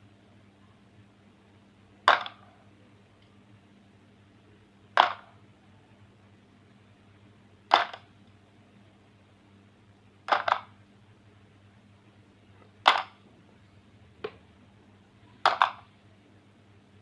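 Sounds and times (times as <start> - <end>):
hard objects clacking: 15.4 - 15.8.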